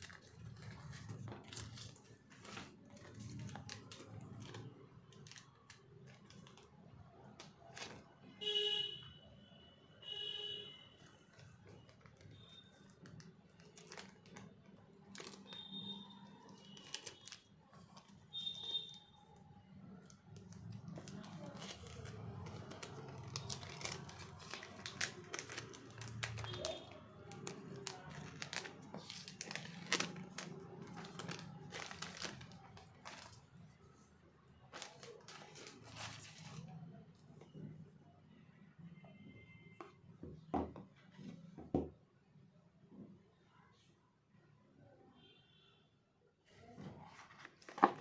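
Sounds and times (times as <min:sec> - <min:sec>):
plastic and paper crinkling: 0:00.0 - 0:08.3, 0:10.9 - 0:37.4, 0:46.6 - 0:48.0.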